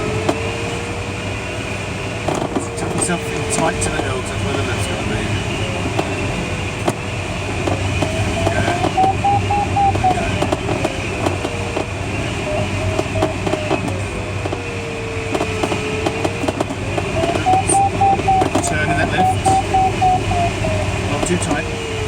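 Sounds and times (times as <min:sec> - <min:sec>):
variometer beeping tone: 0:08.0 - 0:11.1, 0:17.1 - 0:21.6.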